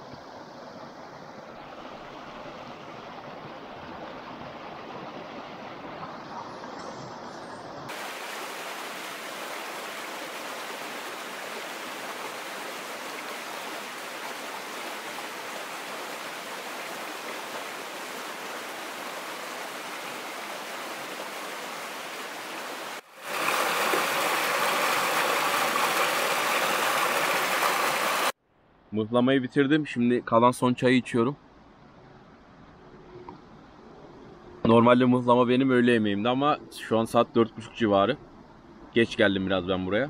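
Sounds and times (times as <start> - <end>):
stream water rushing: 0.0 - 28.4.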